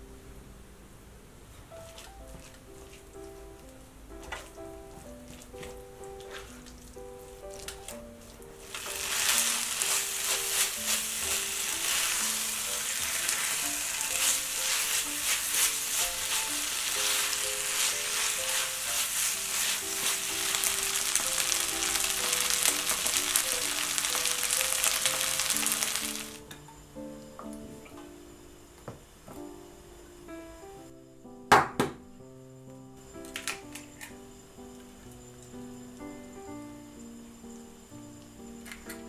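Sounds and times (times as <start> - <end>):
rice sizzling in a hot pan: 4.1 - 26.5.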